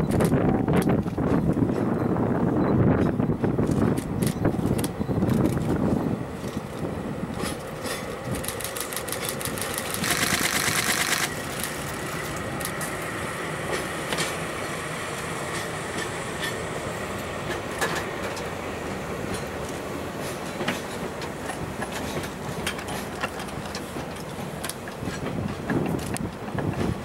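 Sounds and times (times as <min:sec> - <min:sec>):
train rolling: 0:00.0 - 0:27.0
wheels clicking over rail joints: 0:03.0 - 0:13.0, 0:17.5 - 0:18.6, 0:19.3 - 0:27.0.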